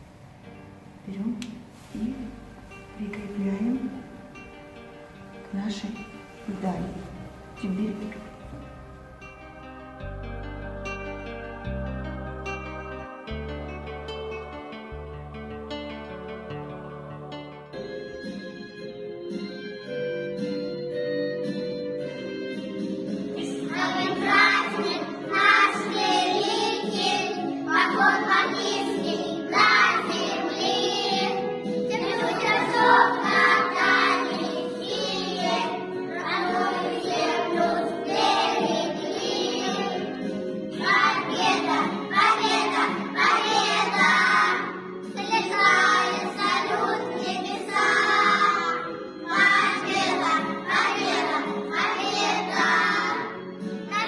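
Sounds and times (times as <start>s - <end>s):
instrumental accompaniment: 0.0s - 28.7s
children singing: 5.9s - 9.0s, 23.3s - 54.0s.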